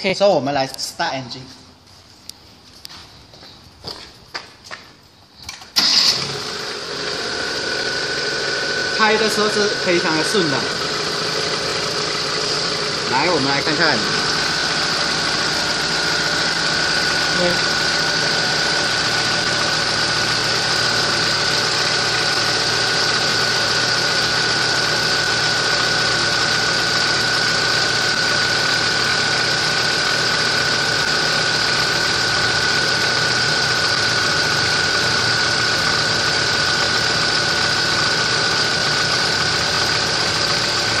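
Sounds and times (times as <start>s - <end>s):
engine running steadily: 5.8s - 41.0s
high whine: 7.5s - 30.1s.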